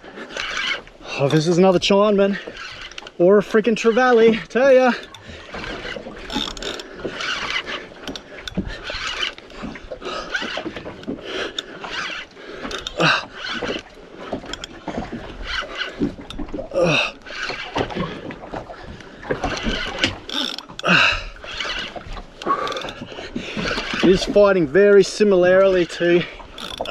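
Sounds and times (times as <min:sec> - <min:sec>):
fishing reel clicking: 0:00.2 - 0:18.1, 0:19.0 - 0:26.9
short falling squeaks: 0:19.5 - 0:20.8, 0:26.6 - 0:26.9.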